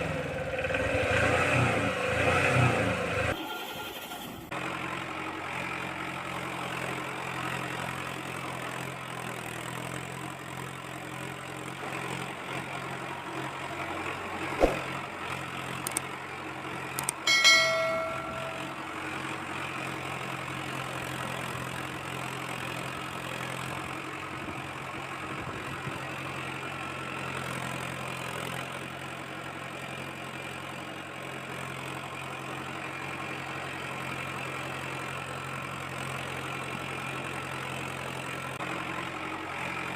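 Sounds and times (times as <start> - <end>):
toy tractor engine drone: 3.0 - 14.3
short bell-like ring: 17.3 - 19.0.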